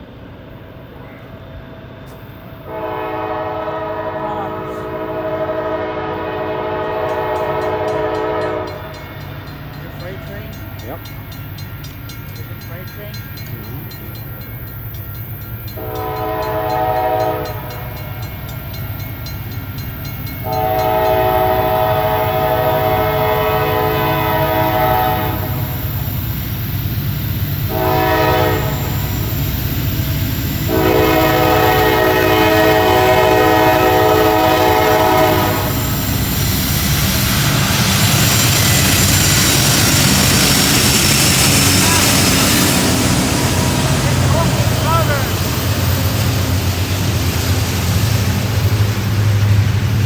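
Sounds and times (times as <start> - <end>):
diesel engines rumbling: 0.0 - 50.0
train rolling past: 0.0 - 50.0
locomotive air horn blasts: 2.6 - 8.9, 15.7 - 18.5, 20.4 - 25.8, 27.6 - 29.5, 30.5 - 36.4.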